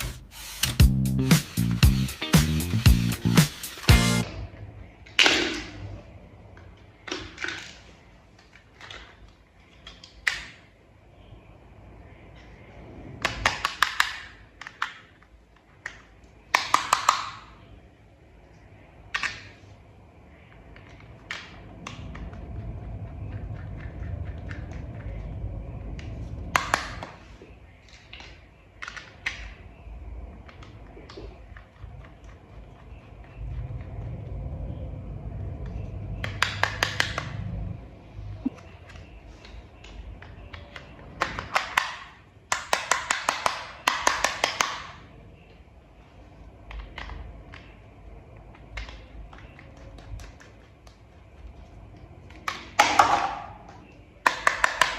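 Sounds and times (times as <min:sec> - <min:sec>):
plastic toy parts clicking: 0:13.2 - 0:17.5, 0:38.9 - 0:45.0, 0:53.7 - 0:54.9.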